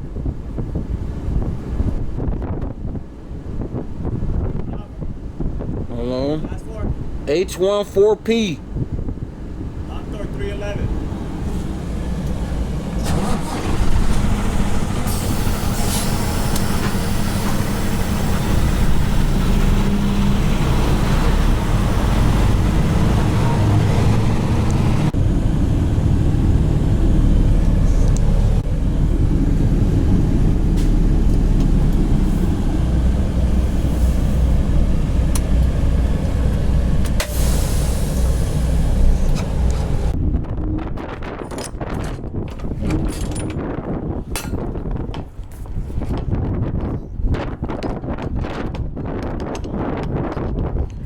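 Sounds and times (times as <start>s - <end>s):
diesel truck engine running: 10.8s - 40.2s.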